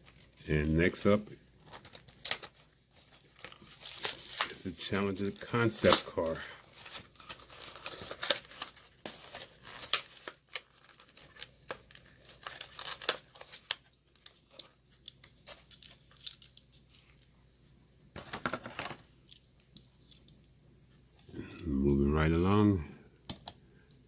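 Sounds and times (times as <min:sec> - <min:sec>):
plastic crinkling: 0:00.0 - 0:17.3
cardboard tearing: 0:01.7 - 0:13.9.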